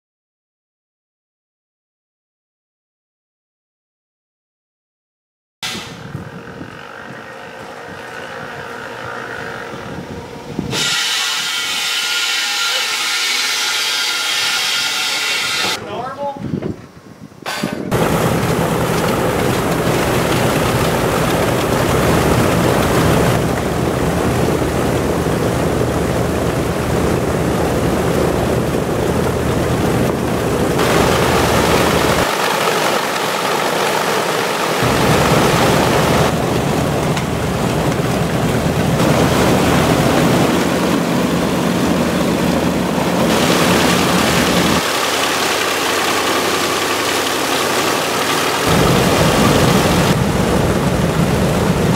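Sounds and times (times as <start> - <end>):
radial piston engines droning: 6.0 - 15.8.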